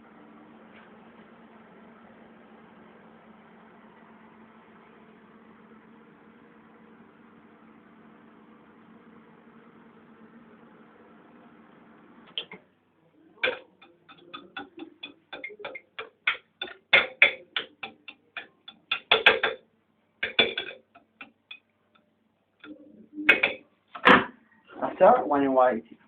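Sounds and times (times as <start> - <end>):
microwave oven hum: 0.0 - 26.0.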